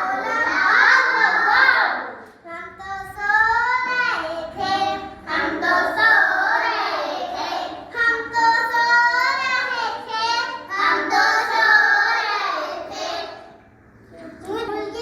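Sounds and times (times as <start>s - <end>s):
young child singing: 2.4s - 13.4s.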